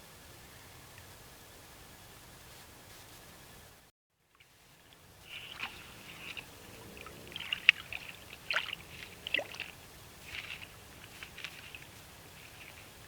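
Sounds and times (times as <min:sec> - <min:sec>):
water splashes: 0:04.4 - 0:13.0
wood cracking: 0:04.9 - 0:13.0.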